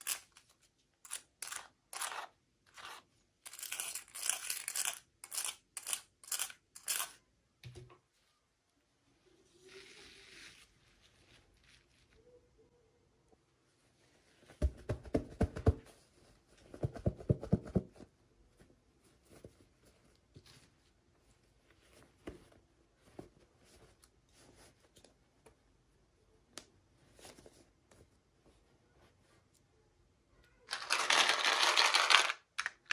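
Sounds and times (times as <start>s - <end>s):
packaging crinkling: 30.7s - 32.9s.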